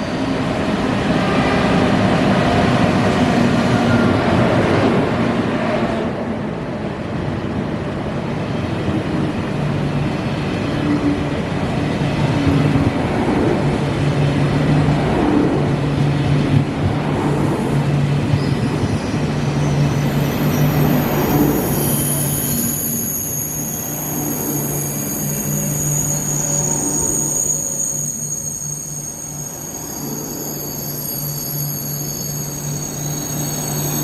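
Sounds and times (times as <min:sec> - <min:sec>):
train rumbling on tracks: 0:00.0 - 0:34.0
high-pitched wheel squeal: 0:18.4 - 0:34.0.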